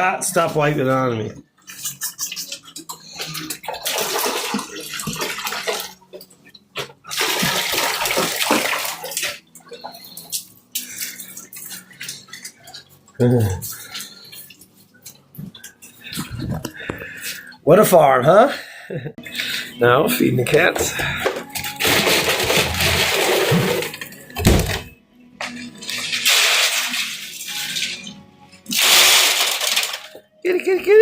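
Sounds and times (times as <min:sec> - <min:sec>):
water pouring and splashing: 0:01.6 - 0:16.6, 0:20.6 - 0:24.8, 0:25.4 - 0:30.2.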